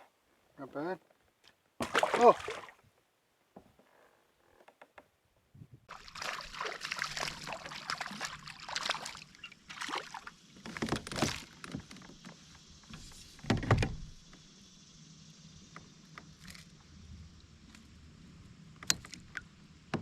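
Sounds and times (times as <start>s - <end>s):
water splashing around kayak: 1.8s - 2.9s, 5.9s - 13.4s.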